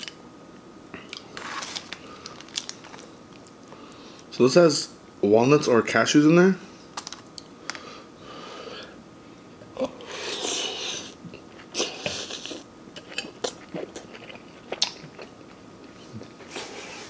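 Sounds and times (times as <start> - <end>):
wet chewing and lip-smacking: 12.4 - 16.3.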